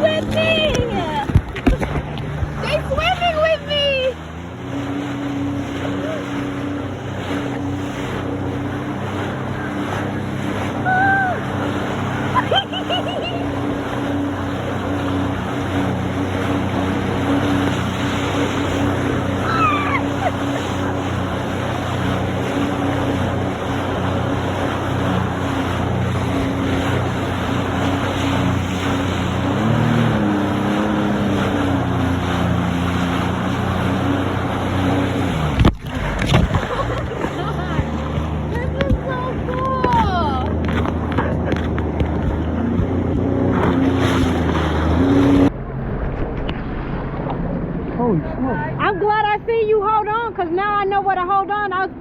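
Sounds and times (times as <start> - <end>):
rushing water: 0.0 - 49.6
jet ski engine running: 0.0 - 52.0
wind noise: 25.1 - 49.6.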